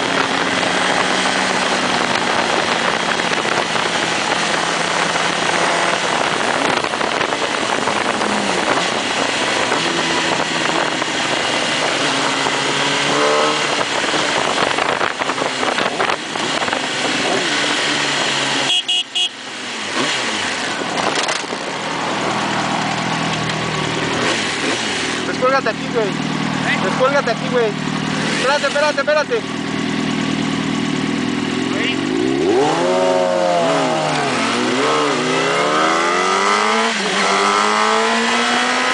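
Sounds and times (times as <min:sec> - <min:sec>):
wind rush: 0:00.0 - 0:18.2
motorcycle engine revving: 0:00.0 - 0:38.9
horn toot: 0:18.6 - 0:19.4.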